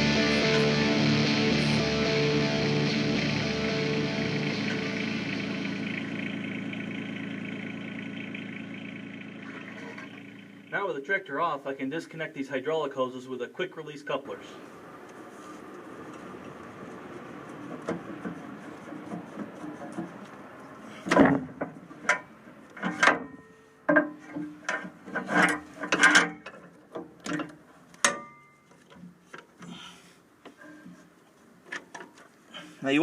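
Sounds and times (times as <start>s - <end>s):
low handling noise: 0.0s - 10.8s, 14.6s - 23.1s.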